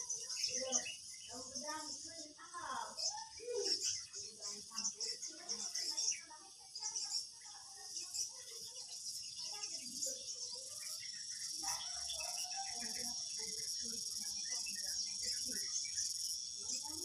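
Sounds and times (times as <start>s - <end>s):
crickets chirping: 0.0s - 17.0s
faint voices: 0.0s - 17.0s.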